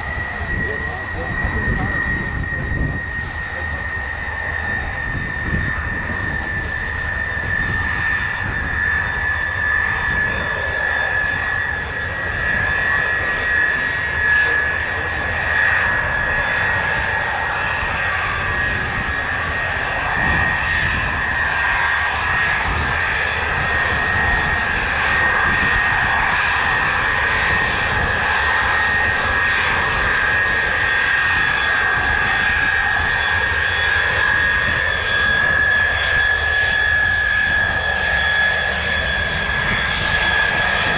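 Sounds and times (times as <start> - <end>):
jet engines whining and roaring: 0.0 - 40.9.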